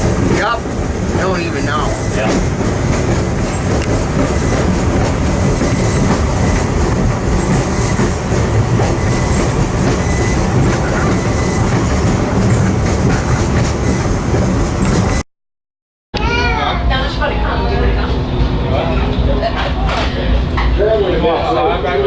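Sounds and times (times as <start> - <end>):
train wheels clickety-clack: 0.0 - 15.2.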